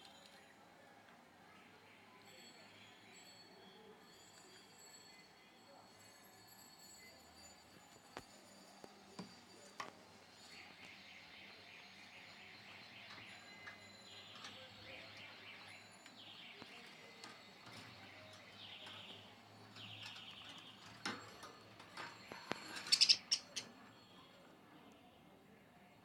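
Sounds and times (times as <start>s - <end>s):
budgerigar warbling chatter: 22.9s - 23.8s.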